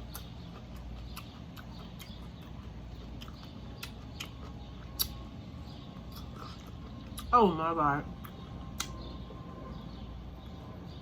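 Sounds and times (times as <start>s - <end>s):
quiet chewing: 0.0s - 7.3s, 8.1s - 9.4s
steady low hum: 0.0s - 11.0s
sharp mouth clicks: 5.0s - 5.2s, 8.2s - 9.0s.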